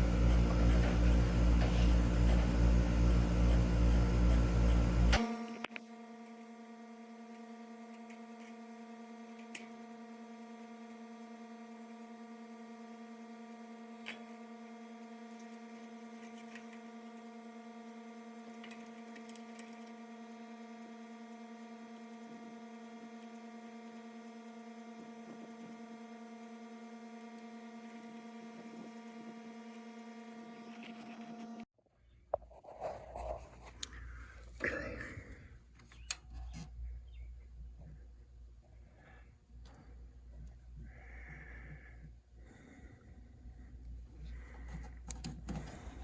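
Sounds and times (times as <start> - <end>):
electrical hum: 0.0 - 6.0.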